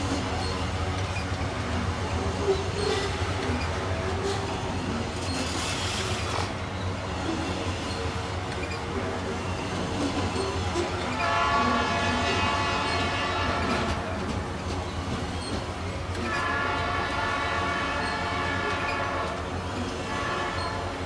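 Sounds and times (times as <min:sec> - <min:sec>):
locomotive rumbling: 0:00.0 - 0:21.0
locomotive horn blasts: 0:11.1 - 0:14.5, 0:16.2 - 0:21.0.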